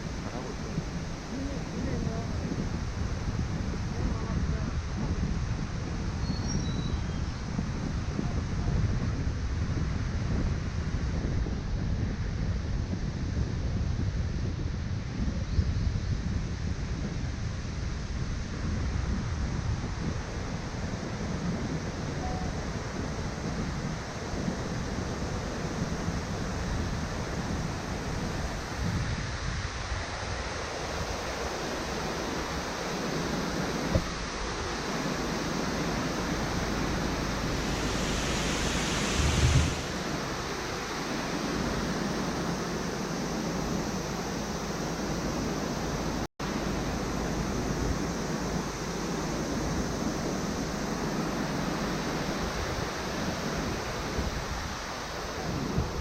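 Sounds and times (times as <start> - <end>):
car road and wind noise: 0.0 - 56.0
hiss ending in a thump: 36.1 - 40.4.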